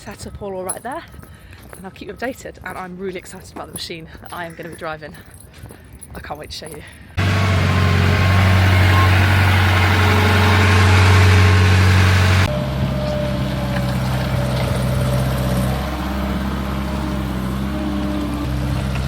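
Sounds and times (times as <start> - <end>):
diesel engines idling: 7.1 - 19.0.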